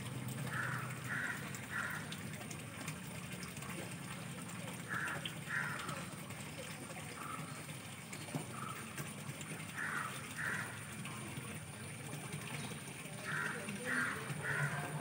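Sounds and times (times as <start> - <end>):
bird cawing: 0.4 - 2.2, 4.9 - 6.2, 9.6 - 11.0, 13.2 - 15.0.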